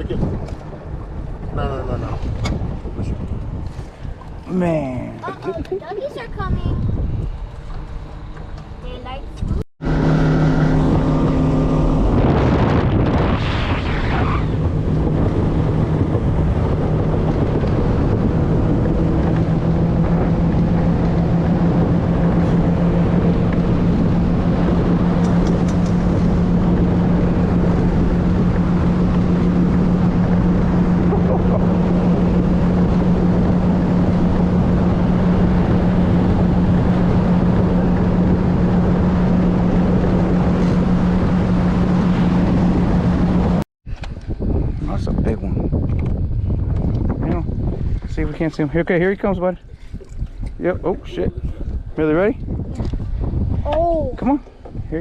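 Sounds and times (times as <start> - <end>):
boat motor droning: 0.0 - 43.6
wind on microphone: 0.0 - 55.0.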